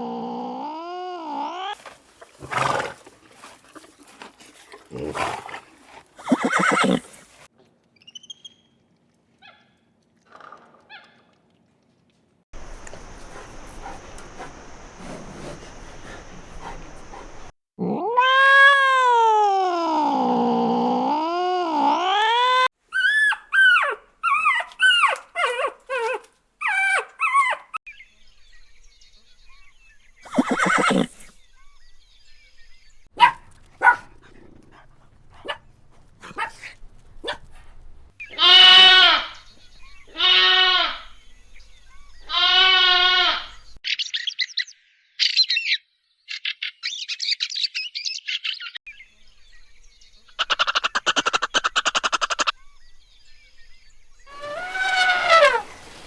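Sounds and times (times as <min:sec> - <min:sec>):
animal calls: 0:06.2 - 0:07.2, 0:12.6 - 0:19.1, 0:30.2 - 0:31.8, 0:32.7 - 0:43.8, 0:49.3 - 0:56.0.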